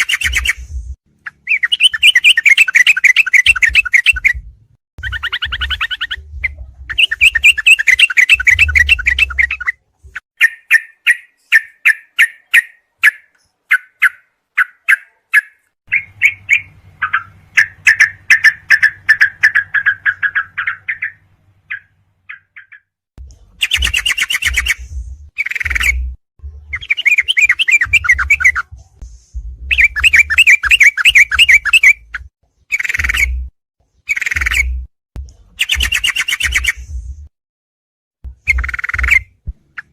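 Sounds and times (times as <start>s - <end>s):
bird chirping song: 0.0s - 28.9s, 29.6s - 37.1s, 38.3s - 39.9s.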